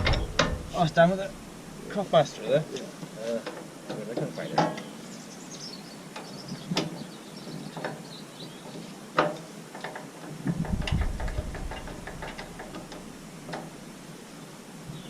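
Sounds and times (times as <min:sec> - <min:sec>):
hand tools knocking on metal: 0:00.0 - 0:01.3, 0:10.5 - 0:13.6
low rumble: 0:00.0 - 0:02.0, 0:10.6 - 0:13.2.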